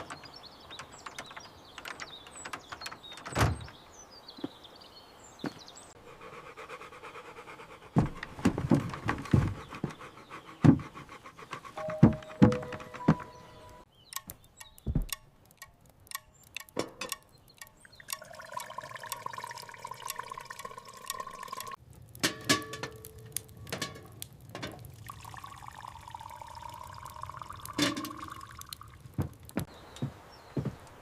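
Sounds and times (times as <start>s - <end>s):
liquid pouring into cup: 18.0s - 21.7s, 25.0s - 28.9s.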